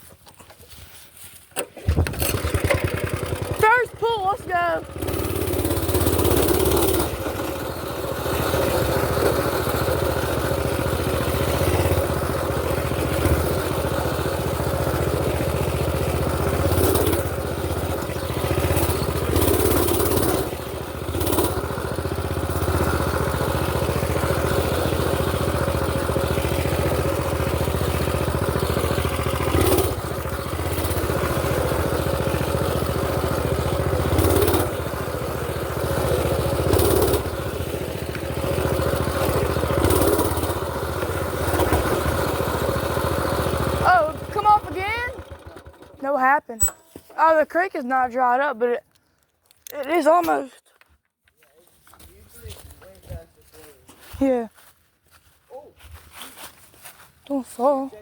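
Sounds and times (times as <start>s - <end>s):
mini bike engine running: 1.6s - 48.6s.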